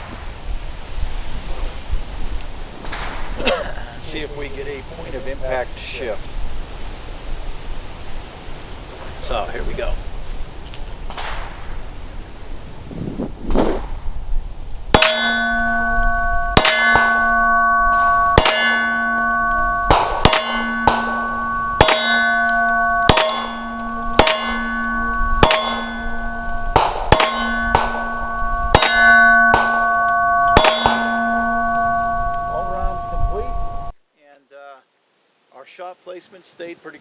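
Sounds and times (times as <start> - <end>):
clanging metallic ring: 14.9 - 33.9.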